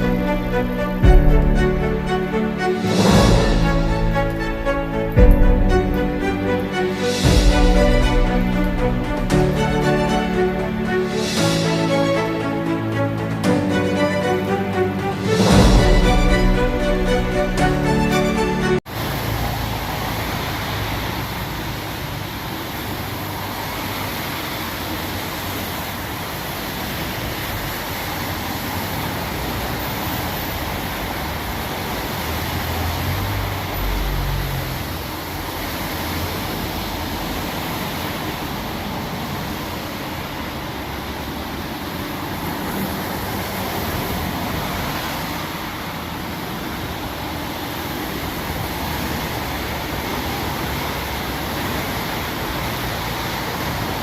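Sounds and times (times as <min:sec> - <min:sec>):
heavy rain hissing: 0:00.0 - 0:54.0.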